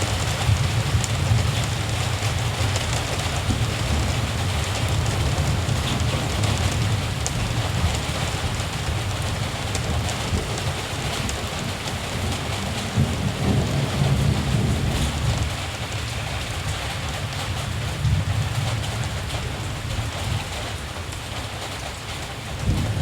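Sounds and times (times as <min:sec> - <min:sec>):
distant thunder rumbling: 0:00.0 - 0:16.8
rain falling: 0:00.0 - 0:23.0
raindrop ticks: 0:00.0 - 0:23.0.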